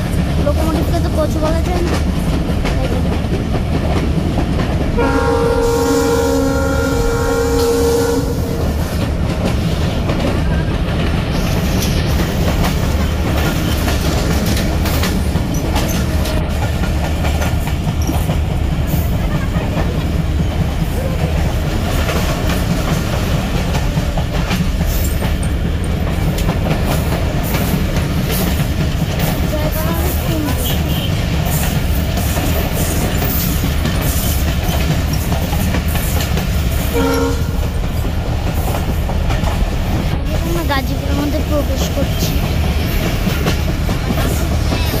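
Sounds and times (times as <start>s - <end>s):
wheels clicking over rail joints: 0.0s - 5.1s, 8.6s - 45.0s
train wheels rumbling on rails: 0.0s - 45.0s
train horn: 5.0s - 8.9s, 30.5s - 31.2s, 36.9s - 37.8s.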